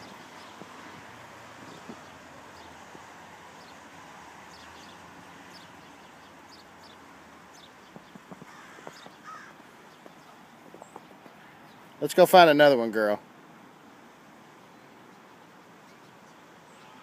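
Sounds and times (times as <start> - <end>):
faint bird calls: 7.6 - 11.8, 15.9 - 17.0.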